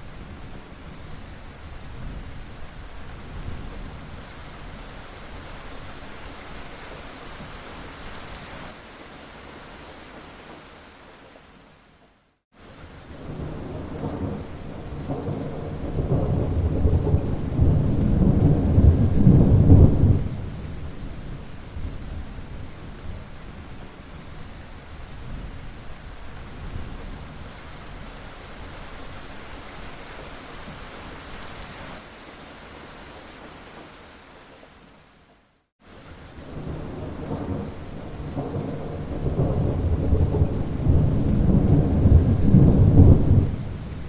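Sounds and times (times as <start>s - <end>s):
steady rain: 0.0s - 44.0s
thunder rumbling: 13.1s - 23.3s, 36.4s - 44.0s.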